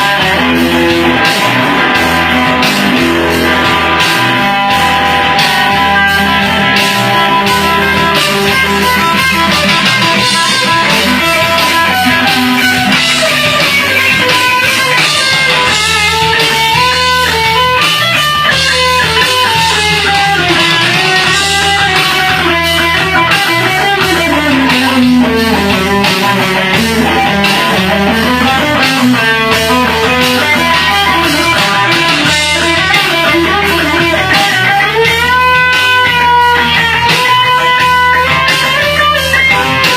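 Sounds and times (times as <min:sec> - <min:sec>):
backing track with bass line: 0:00.0 - 0:39.9
electric guitar solo: 0:00.0 - 0:39.9.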